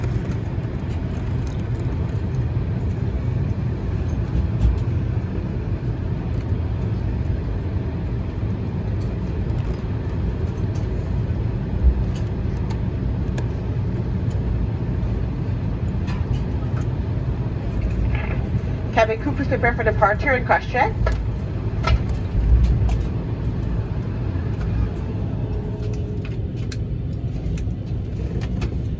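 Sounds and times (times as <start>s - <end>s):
low rumble of aircraft cabin: 0.0s - 28.9s.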